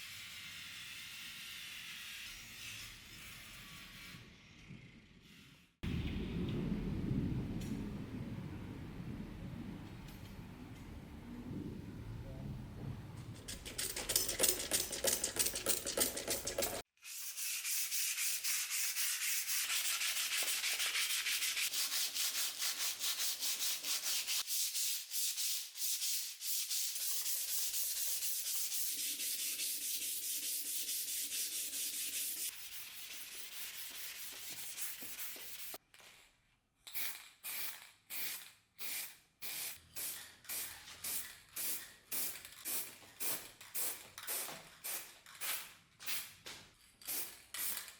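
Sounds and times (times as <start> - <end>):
hand sanding strokes: 17.0 - 35.8.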